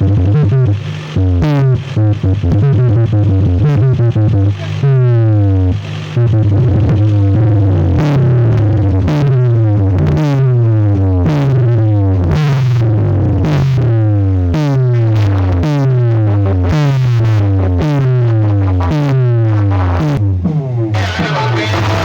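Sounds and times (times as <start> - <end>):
heavy bass with synth sweep: 0.0 - 22.0
loud electronic dance music: 4.3 - 5.0, 20.9 - 22.0.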